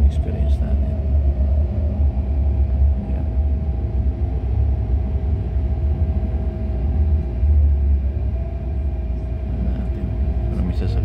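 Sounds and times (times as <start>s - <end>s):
faint steady whine: 0.0s - 11.0s
train cabin rumble: 0.0s - 11.0s.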